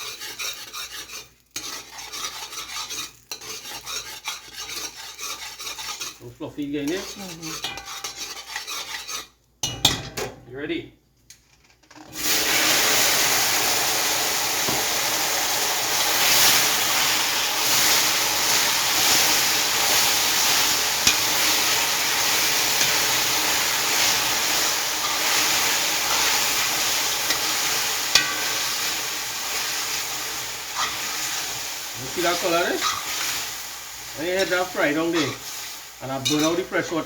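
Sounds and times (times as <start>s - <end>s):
chicken sizzling in a pot: 0.0s - 10.0s, 11.8s - 37.0s.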